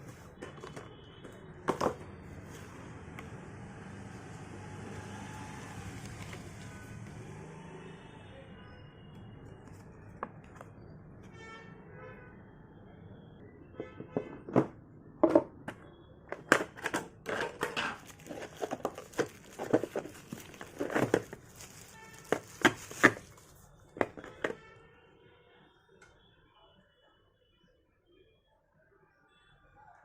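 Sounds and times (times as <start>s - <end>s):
plastic and cardboard crinkling: 16.4s - 24.6s.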